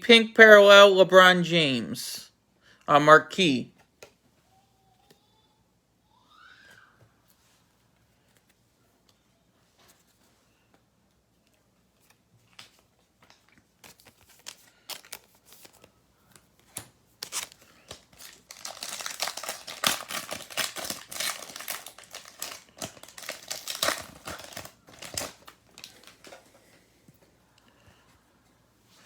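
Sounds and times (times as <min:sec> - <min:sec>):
foil wrapper tearing and crinkling: 0:13.8 - 0:15.9, 0:16.7 - 0:26.4.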